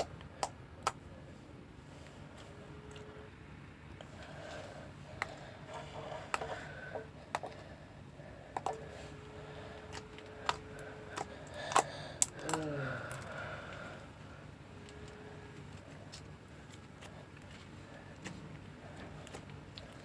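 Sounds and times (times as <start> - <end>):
slime clicking and popping: 0.0 - 1.0, 9.9 - 13.3.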